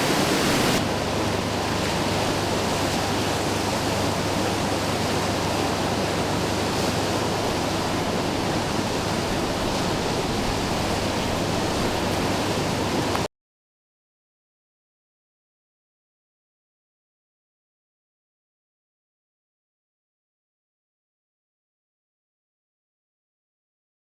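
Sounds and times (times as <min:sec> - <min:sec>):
rush of white water: 0:00.0 - 0:13.3.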